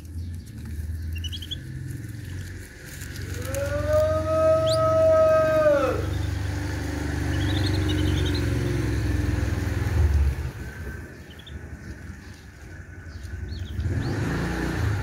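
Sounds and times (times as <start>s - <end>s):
passing motor vehicle rumble: 0.0s - 15.0s.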